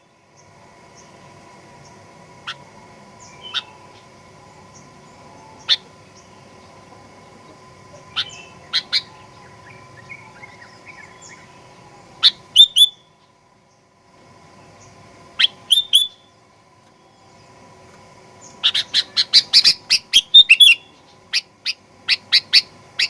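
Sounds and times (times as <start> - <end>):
faint distant bird chirps: 0.0 - 23.0
faint steady hum: 0.0 - 23.0
bird chirping loudly: 2.4 - 4.0, 8.1 - 11.6, 15.4 - 16.2, 18.5 - 22.7
bird warbling softly: 2.4 - 6.0.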